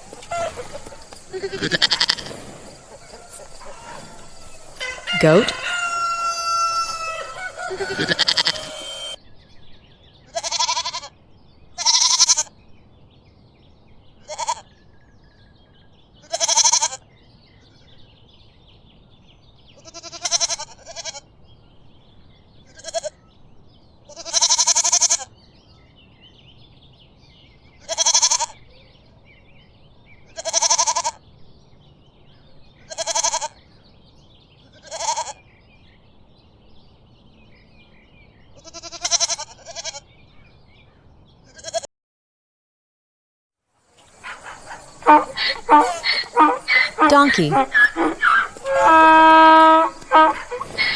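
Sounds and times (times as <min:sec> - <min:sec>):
goats bleating: 0:00.0 - 0:09.2, 0:44.1 - 0:50.9.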